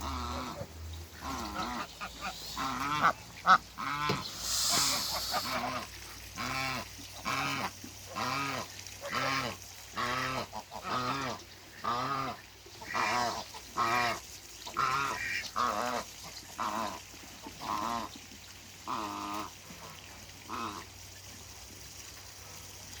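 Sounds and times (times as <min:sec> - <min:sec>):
goose honking: 0:00.0 - 0:14.2.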